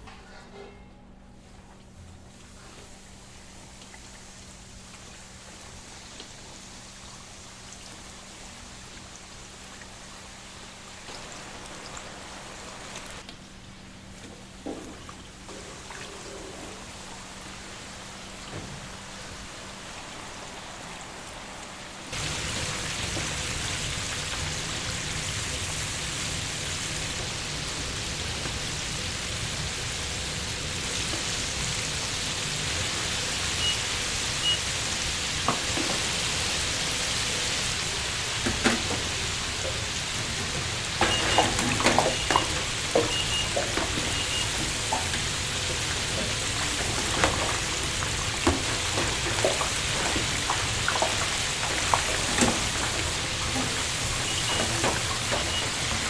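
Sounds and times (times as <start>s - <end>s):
deep-frying oil hiss and crackle: 2.1s - 56.0s.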